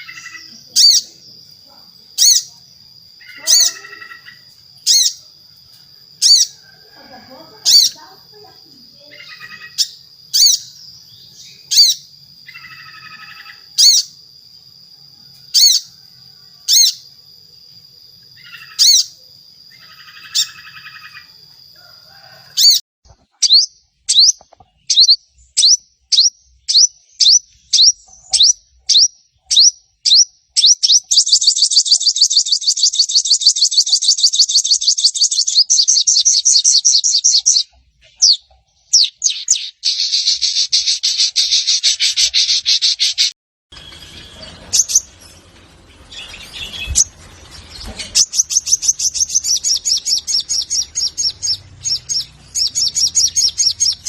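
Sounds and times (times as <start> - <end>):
rapid bird chatter: 0.0 - 5.3, 19.8 - 21.3, 22.6 - 54.0
bird chirping: 0.0 - 21.8, 22.6 - 54.0.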